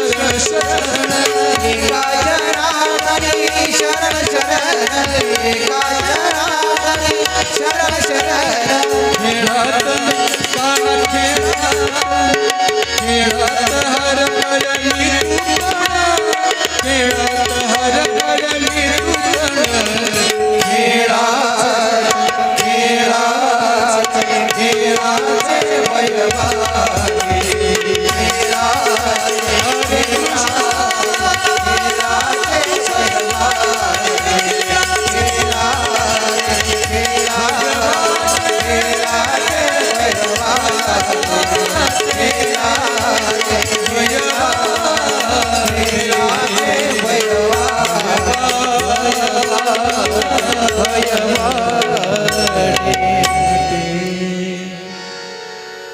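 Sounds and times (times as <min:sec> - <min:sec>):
tabla rhythm: 0:00.0 - 0:55.3.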